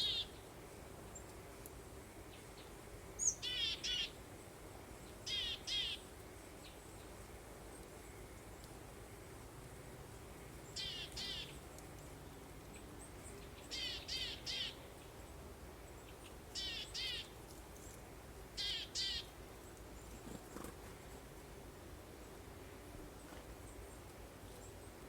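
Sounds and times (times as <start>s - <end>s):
bird calling: 16.6s - 17.3s.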